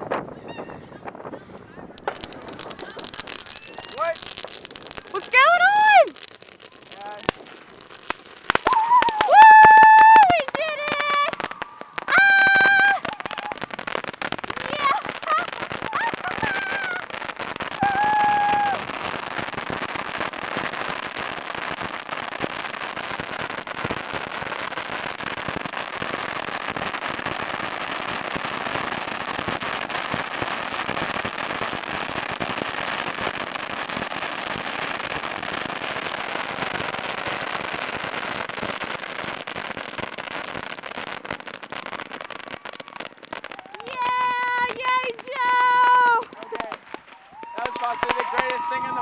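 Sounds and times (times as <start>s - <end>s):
bottle rockets crackling and whooshing: 0.0s - 5.6s.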